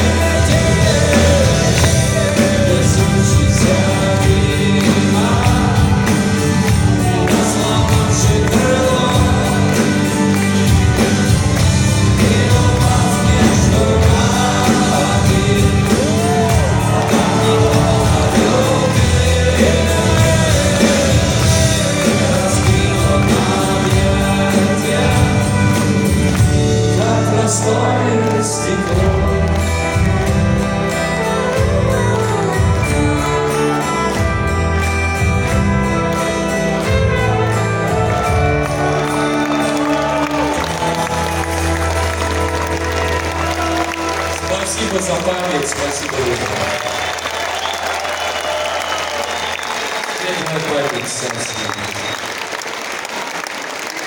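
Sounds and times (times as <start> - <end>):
person singing: 0.0 - 34.3
live rock band playing: 0.0 - 54.0.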